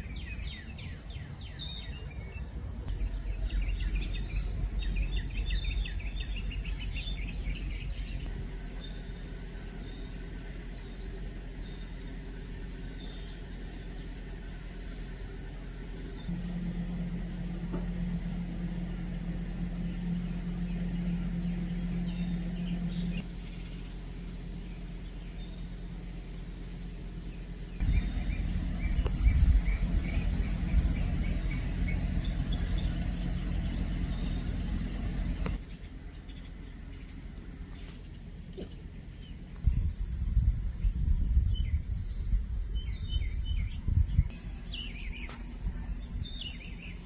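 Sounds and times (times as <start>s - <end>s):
faint bird chirps: 0.0s - 16.3s, 19.5s - 47.0s
low hum and rumble: 0.0s - 47.0s.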